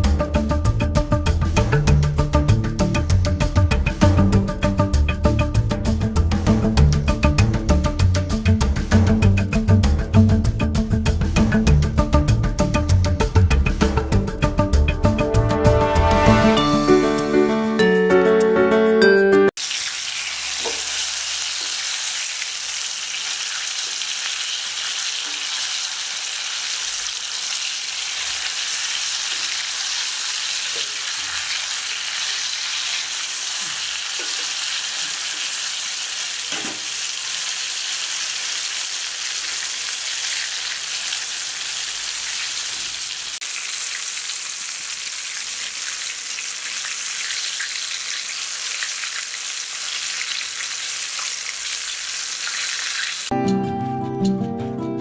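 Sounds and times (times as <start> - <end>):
chicken frying in hot oil: 19.6 - 53.3.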